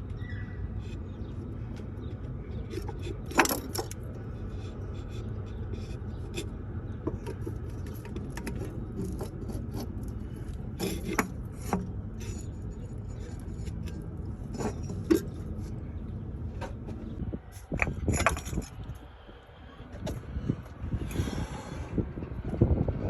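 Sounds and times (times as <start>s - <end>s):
steady low rumble: 0.0s - 23.0s
tools and metal parts clinking: 17.5s - 18.8s.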